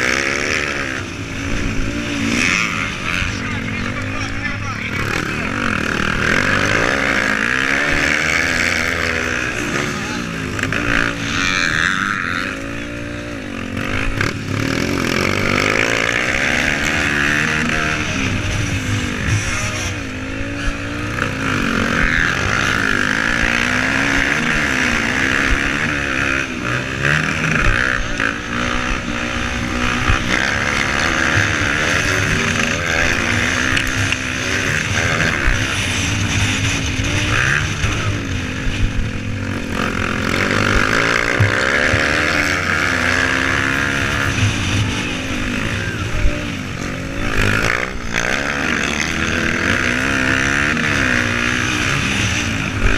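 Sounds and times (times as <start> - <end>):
motocross motorcycle engines revving: 0.0 - 52.9.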